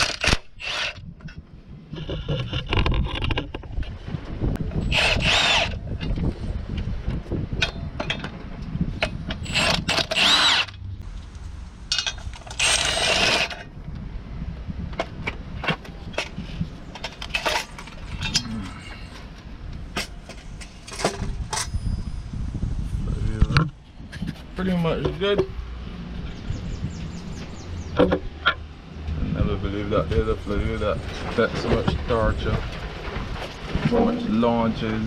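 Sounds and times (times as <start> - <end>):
power tool motor spinning: 0.0 - 1.0, 4.8 - 5.8, 9.4 - 10.8, 12.5 - 13.6.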